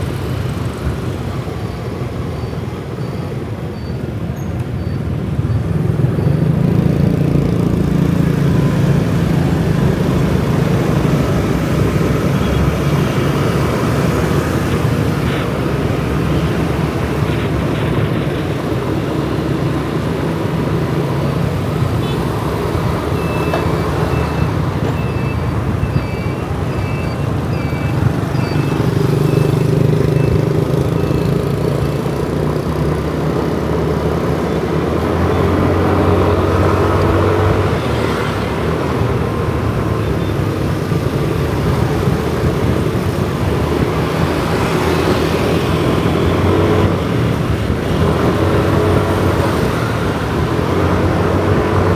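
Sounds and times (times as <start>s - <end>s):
city traffic: 0.0s - 51.9s
motorcycle engine: 5.8s - 17.2s, 18.0s - 51.9s
short high beeps: 23.1s - 31.2s.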